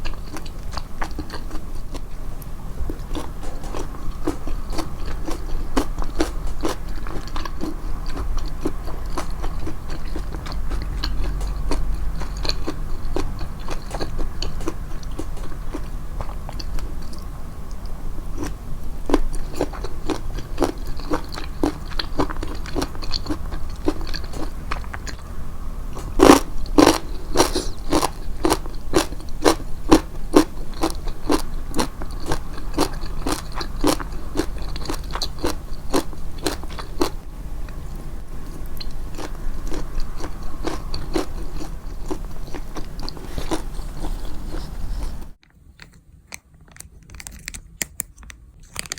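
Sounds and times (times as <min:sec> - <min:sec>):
chewing crunchy food: 0:00.0 - 0:48.9.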